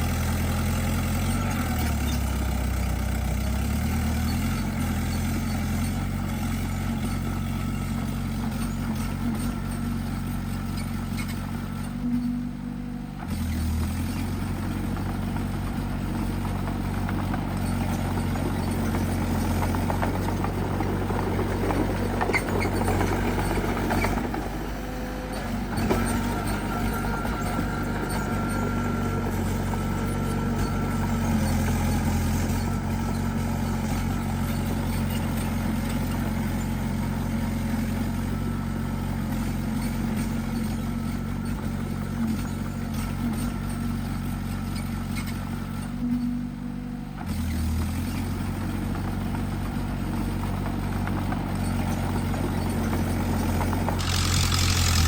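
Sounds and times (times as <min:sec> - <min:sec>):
bulldozer diesel engine working: 0:00.0 - 0:55.0
crackling and scraping: 0:53.8 - 0:55.0.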